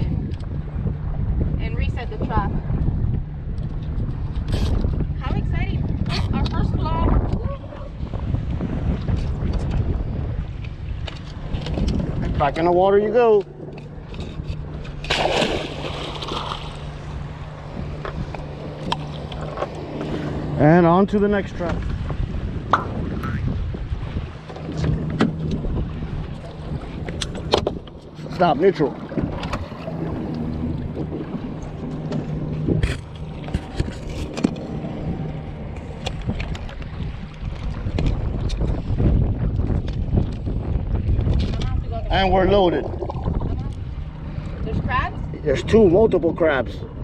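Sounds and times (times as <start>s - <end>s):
wind buffeting microphone: 0.0s - 47.0s
crab trap splashing into water: 15.0s - 16.8s.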